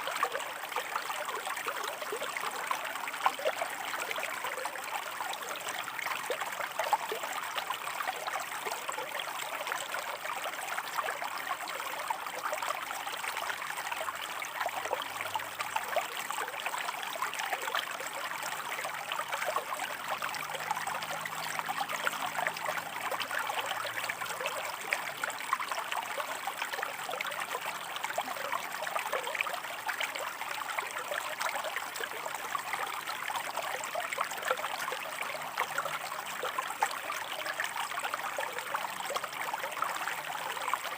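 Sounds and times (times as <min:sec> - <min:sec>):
small trickling splashes: 0:00.0 - 0:40.9
stream rushing over rocks: 0:09.2 - 0:40.9.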